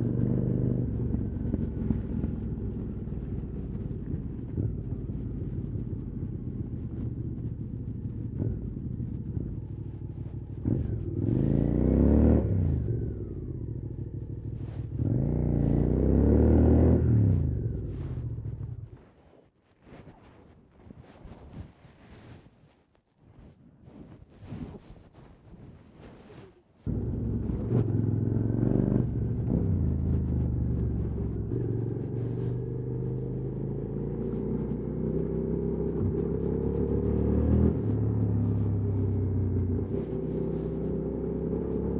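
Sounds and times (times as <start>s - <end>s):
motorcycle engine revving: 5.8s - 19.0s, 26.9s - 41.9s.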